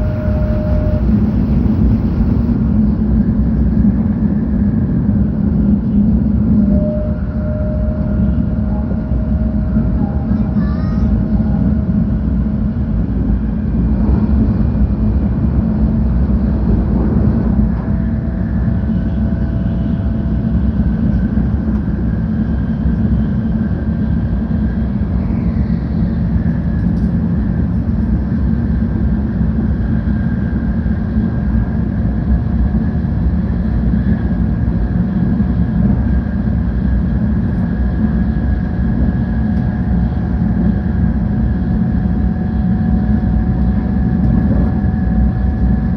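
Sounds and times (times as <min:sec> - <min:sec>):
train wheels rumbling: 0:00.0 - 0:25.1.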